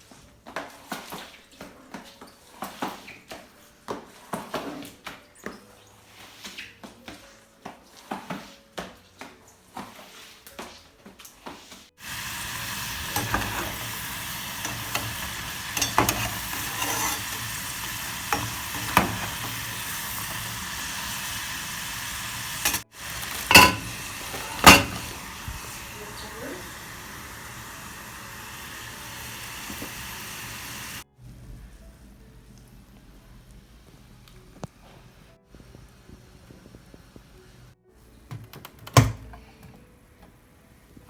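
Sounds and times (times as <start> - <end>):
food sizzling in a pan: 12.0 - 31.1.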